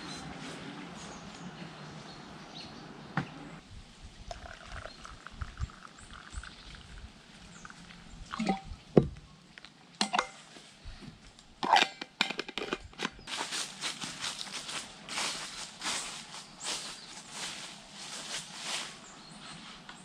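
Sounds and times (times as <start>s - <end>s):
footsteps crunching on forest floor: 13.2s - 19.9s.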